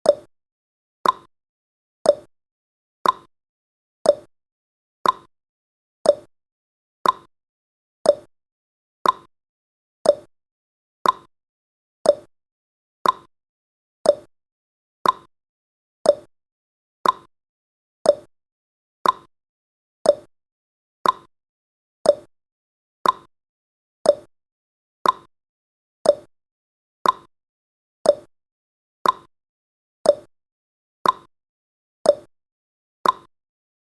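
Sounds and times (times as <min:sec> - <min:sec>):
clock ticking: 0:03.0 - 0:03.3, 0:05.0 - 0:05.3, 0:06.1 - 0:06.3, 0:07.0 - 0:07.3, 0:08.1 - 0:08.3, 0:09.0 - 0:09.3, 0:10.0 - 0:10.3, 0:11.0 - 0:11.3, 0:12.1 - 0:12.3, 0:13.0 - 0:13.3, 0:14.1 - 0:14.3, 0:15.0 - 0:15.3, 0:16.1 - 0:16.3, 0:17.0 - 0:17.3, 0:18.1 - 0:18.3, 0:19.0 - 0:19.3, 0:20.1 - 0:20.3, 0:21.0 - 0:21.3, 0:22.1 - 0:22.3, 0:23.0 - 0:23.3, 0:24.1 - 0:24.3, 0:25.0 - 0:25.3, 0:26.0 - 0:26.3, 0:27.0 - 0:27.3, 0:28.1 - 0:28.3, 0:29.0 - 0:29.3, 0:30.1 - 0:30.3, 0:31.0 - 0:31.3, 0:32.1 - 0:32.3, 0:33.0 - 0:33.3.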